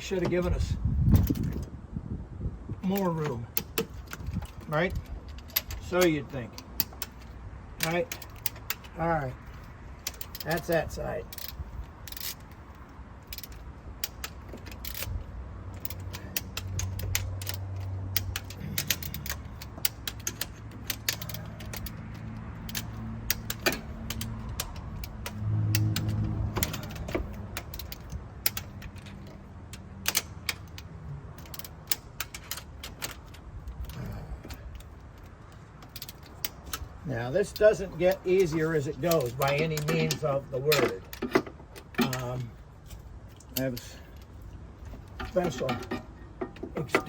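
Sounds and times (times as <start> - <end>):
small metal knocks: 2.8 - 47.0
torque wrench clicking: 9.6 - 12.6, 13.2 - 44.0.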